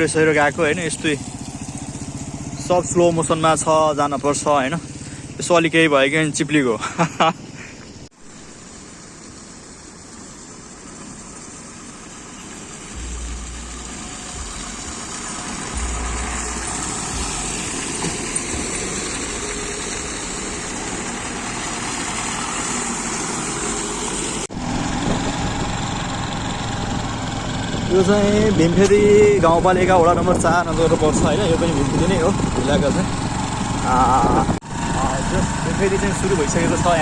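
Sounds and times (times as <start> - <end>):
motorcycle engine running: 0.0 - 37.0
wind and road noise: 0.0 - 37.0
low wind buffeting: 12.7 - 37.0.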